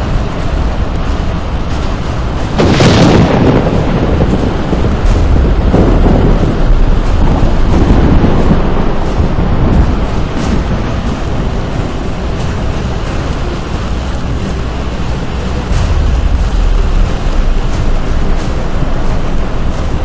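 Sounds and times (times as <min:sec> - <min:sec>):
steady low roar: 0:00.0 - 0:20.0
thunder crack and rumble: 0:00.0 - 0:20.0.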